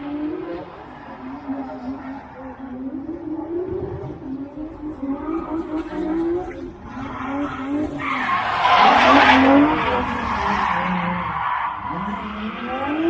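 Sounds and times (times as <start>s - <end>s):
car engine revving: 3.2s - 13.0s
tyre screech: 5.9s - 12.1s.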